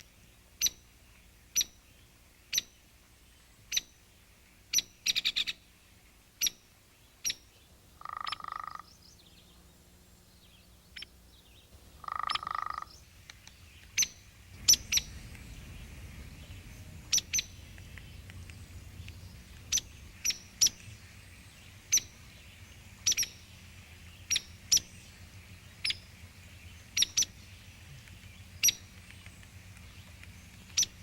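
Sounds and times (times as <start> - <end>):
low buzzy bird trill: 6.4 - 31.0
bird high chip notes: 14.0 - 23.5.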